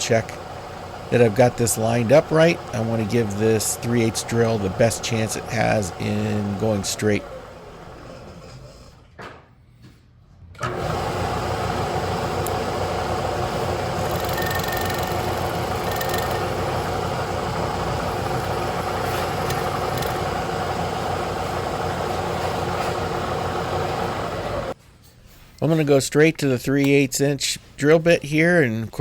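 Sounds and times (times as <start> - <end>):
machine tool spindle running: 0.0 - 9.0, 10.6 - 24.8.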